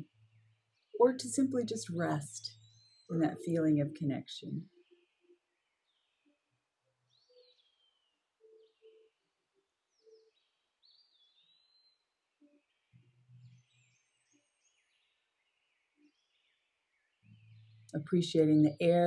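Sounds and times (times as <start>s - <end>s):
faint birdsong: 0.0s - 19.0s.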